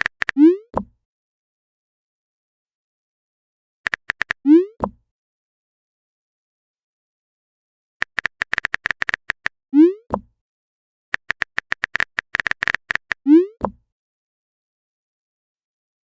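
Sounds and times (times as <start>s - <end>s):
phone keyboard typing clicks: 0.0s - 0.4s, 3.9s - 4.4s, 8.0s - 9.5s, 11.2s - 13.8s.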